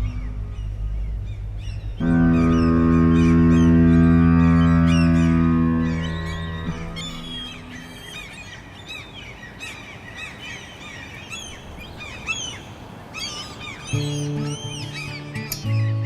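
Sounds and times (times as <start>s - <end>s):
birds chirping: 0.0s - 16.0s
steady outdoor hiss: 0.0s - 16.0s
acoustic guitar music: 2.0s - 8.0s, 13.9s - 16.0s.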